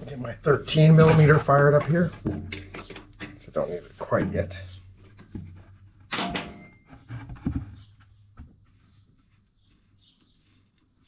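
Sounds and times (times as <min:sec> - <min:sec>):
metallic clank with ring: 0:06.1 - 0:06.9.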